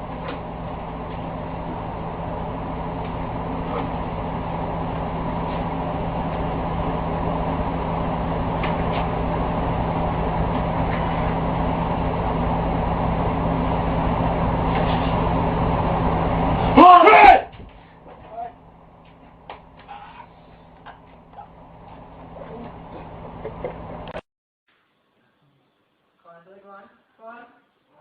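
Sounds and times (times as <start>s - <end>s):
vehicle running with road noise: 0.0s - 17.0s.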